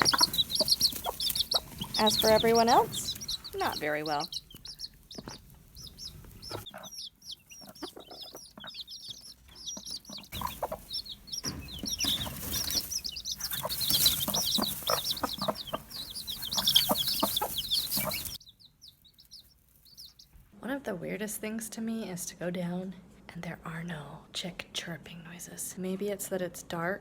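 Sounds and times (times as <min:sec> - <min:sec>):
hen clucking: 0:00.0 - 0:20.3
chicks peeping: 0:00.0 - 0:20.4.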